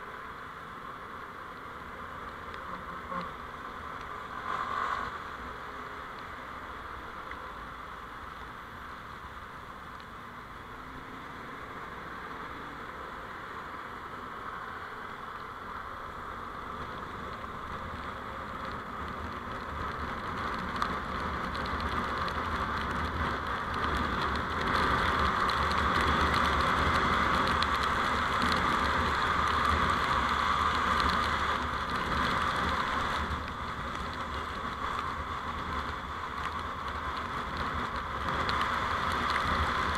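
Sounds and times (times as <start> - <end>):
vehicle road and wind noise: 0.0 - 39.9.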